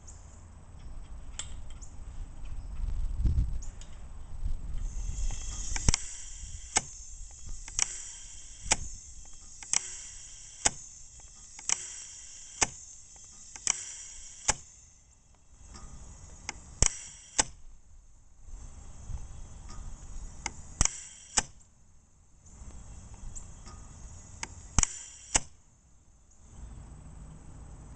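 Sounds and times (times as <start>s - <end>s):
bird cannon mechanism clicking: 4.8s - 17.6s, 19.6s - 21.7s, 22.5s - 25.6s.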